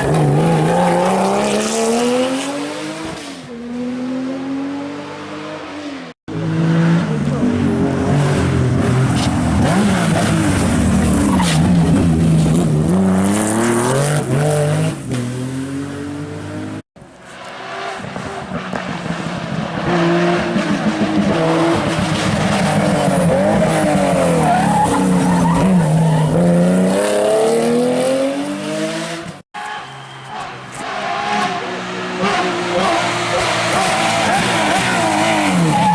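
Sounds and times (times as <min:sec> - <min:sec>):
car approaching and passing: 0:00.0 - 0:29.4, 0:30.0 - 0:35.9
rally car engine revving: 0:30.7 - 0:35.9.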